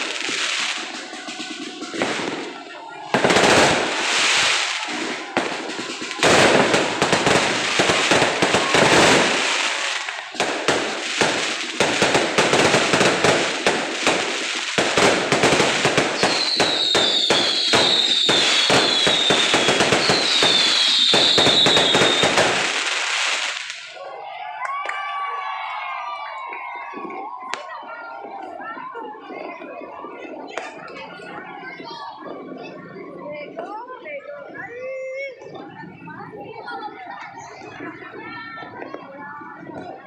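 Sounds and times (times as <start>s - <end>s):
fireworks bangs and crackle: 0.0s - 24.0s, 26.6s - 33.7s, 37.2s - 40.0s
falling firework whistles: 3.4s - 23.8s.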